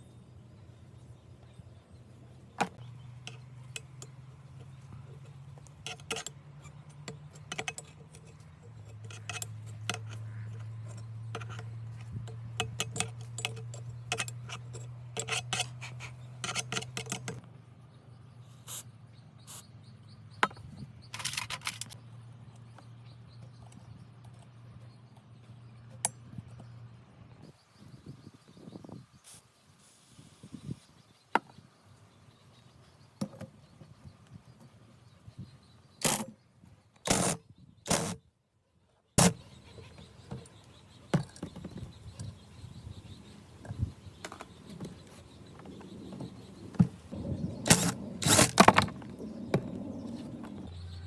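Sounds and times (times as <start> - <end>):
tools and small parts clicking: 3.2 - 17.5, 20.4 - 22.0, 36.0 - 36.4.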